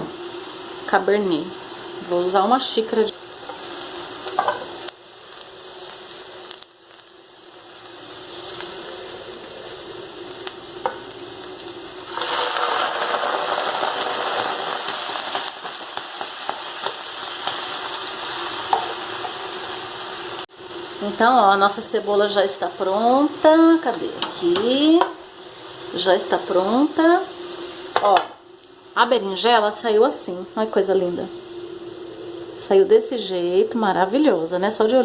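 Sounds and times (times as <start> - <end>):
onion sizzling in a frying pan: 0.0 - 35.0.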